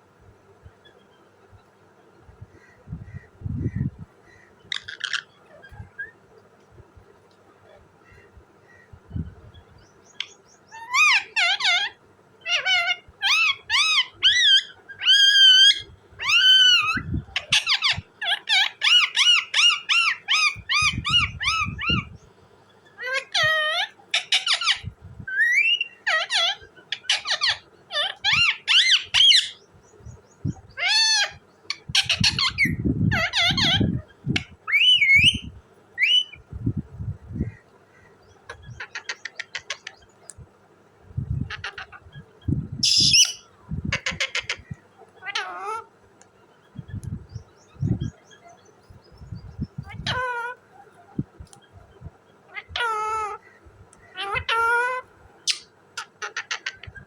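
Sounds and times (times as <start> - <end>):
parakeet squawking: 3.1 - 6.1, 10.2 - 22.2, 23.0 - 29.6, 30.6 - 36.4, 38.4 - 40.0, 41.3 - 42.2, 42.8 - 45.9, 49.7 - 50.7, 52.5 - 57.0.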